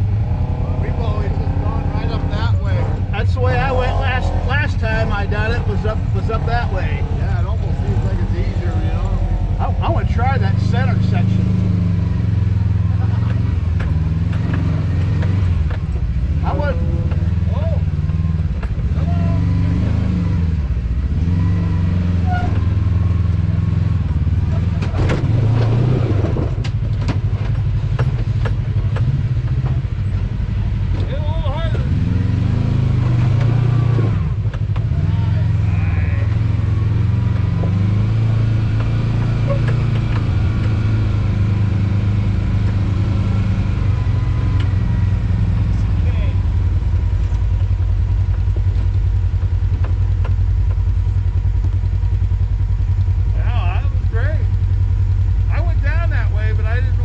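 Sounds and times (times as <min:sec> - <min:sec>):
off-road vehicle engine idling: 0:00.0 - 0:57.0
sharp clicks and knocks: 0:13.2 - 0:16.1, 0:24.1 - 0:30.3, 0:34.4 - 0:34.9, 0:38.6 - 0:40.9, 0:47.2 - 0:53.2.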